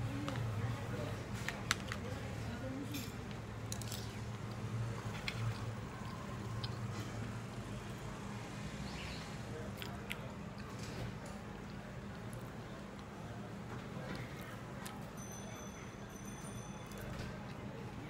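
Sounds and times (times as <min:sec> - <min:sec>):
soft chewing: 0:01.2 - 0:08.2, 0:09.6 - 0:15.2, 0:16.4 - 0:18.0.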